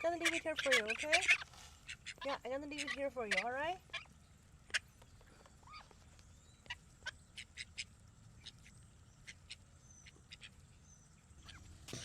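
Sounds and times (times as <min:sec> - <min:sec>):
poultry making short sharp calls: 0:00.0 - 0:04.1.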